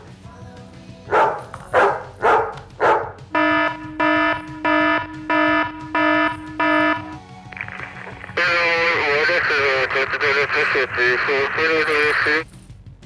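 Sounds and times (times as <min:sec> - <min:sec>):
dog barking: 0:01.1 - 0:03.3
alarm buzzer beeping: 0:03.3 - 0:10.1.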